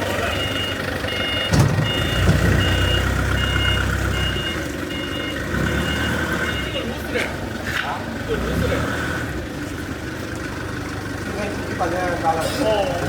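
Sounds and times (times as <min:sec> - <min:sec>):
backup alarm beeping: 0:00.2 - 0:06.9.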